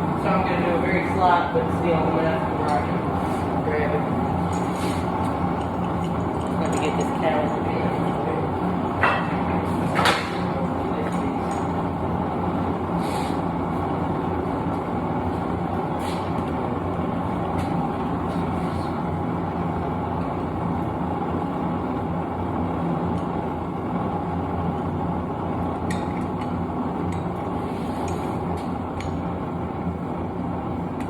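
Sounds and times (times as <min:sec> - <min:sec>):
gas burner hissing: 0:00.0 - 0:31.0
low hum: 0:00.0 - 0:31.0.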